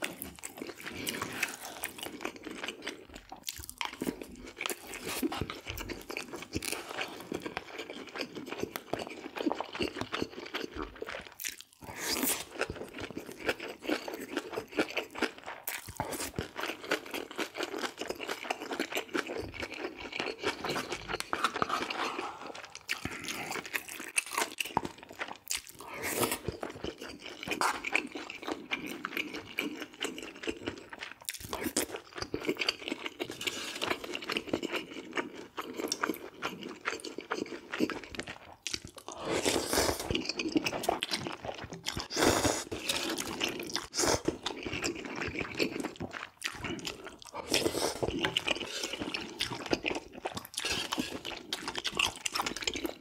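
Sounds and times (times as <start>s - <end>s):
chewing and crunching food: 0.0s - 53.0s.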